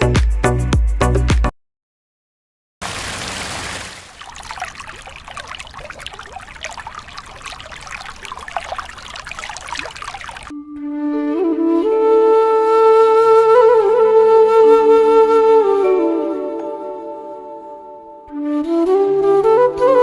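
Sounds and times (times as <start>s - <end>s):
water trickling and splashing: 2.8s - 10.5s.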